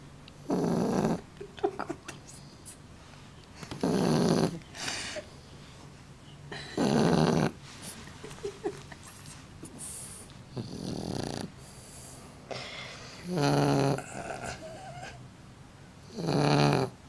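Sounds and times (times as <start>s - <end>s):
dog snoring: 0.4s - 1.2s, 3.7s - 4.6s, 6.8s - 7.6s, 10.5s - 12.2s, 13.2s - 15.2s, 16.0s - 17.0s.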